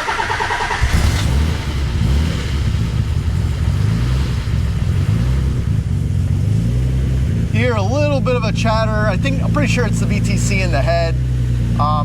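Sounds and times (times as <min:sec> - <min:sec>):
car engine idling with chatter: 0:04.5 - 0:12.0.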